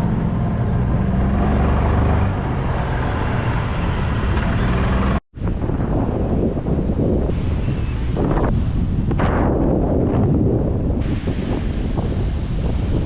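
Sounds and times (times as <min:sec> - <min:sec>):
vehicle engine humming: 0:00.0 - 0:05.2
road and wind noise: 0:00.0 - 0:13.0.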